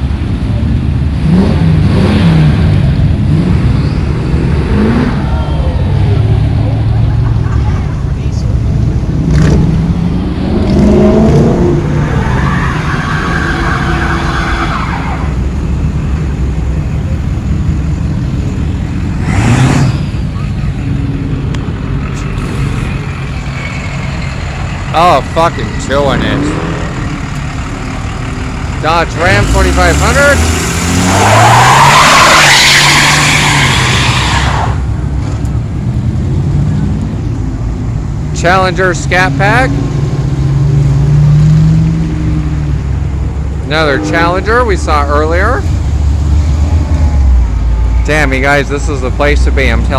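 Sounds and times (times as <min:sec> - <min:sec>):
car engine running hard: 0:00.0 - 0:49.9
tyres squealing: 0:11.8 - 0:15.5, 0:22.2 - 0:35.0.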